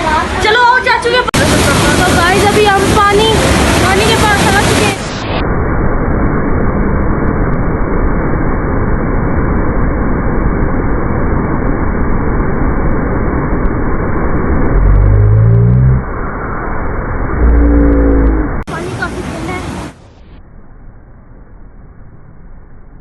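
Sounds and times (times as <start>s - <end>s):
fast river rushing: 0.0s - 5.1s
short rising pitched sound: 14.4s - 18.6s.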